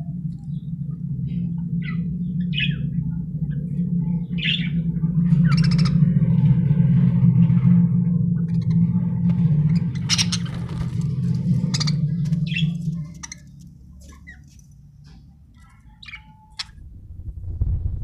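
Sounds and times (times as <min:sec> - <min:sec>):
low steady hum: 0:00.0 - 0:18.0
budgerigar chicks chirping: 0:05.4 - 0:06.1, 0:09.6 - 0:14.8, 0:15.6 - 0:16.8.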